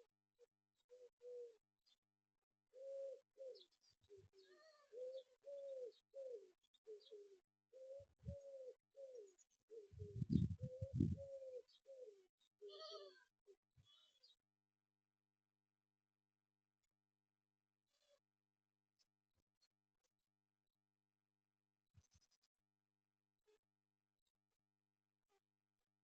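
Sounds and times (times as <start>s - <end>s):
pigeons cooing: 2.8s - 3.7s, 4.9s - 13.1s.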